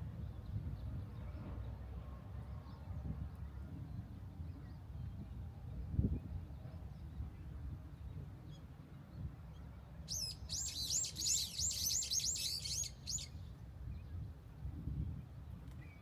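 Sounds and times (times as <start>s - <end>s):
songbird singing high notes: 10.1s - 13.4s.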